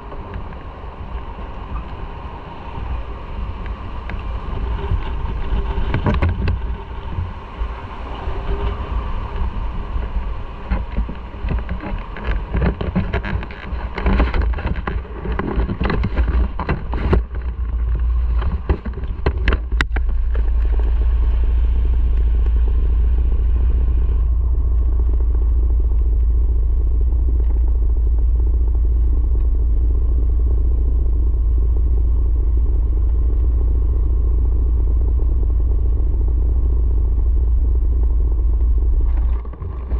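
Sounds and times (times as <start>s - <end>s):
wind and road noise: 0.0s - 39.9s
knocks and clatter: 4.1s - 6.8s, 10.7s - 21.3s, 38.0s - 39.9s.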